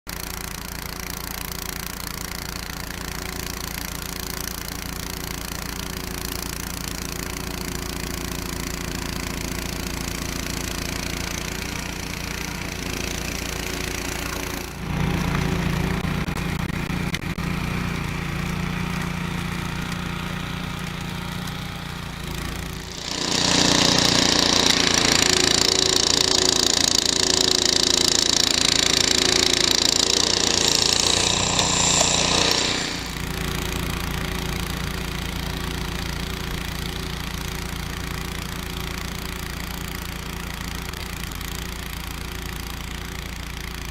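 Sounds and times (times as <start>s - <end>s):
snow blower engine knocking: 0.1s - 43.9s
loud rushing hiss: 29.1s - 33.2s.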